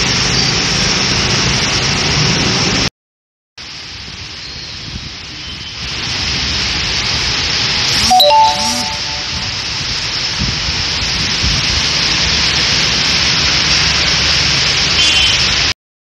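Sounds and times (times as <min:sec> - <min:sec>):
heavy rain pouring: 0:03.6 - 0:08.5, 0:09.2 - 0:15.7.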